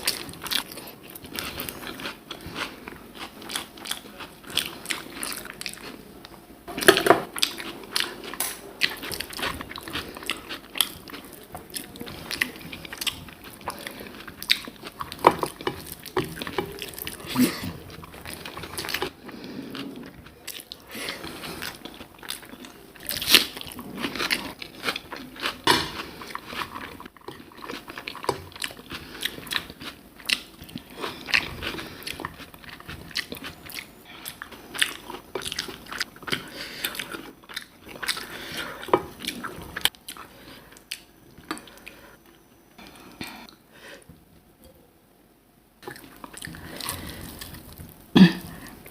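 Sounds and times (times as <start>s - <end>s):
person chewing and crunching food: 0.0s - 44.1s, 45.8s - 48.9s.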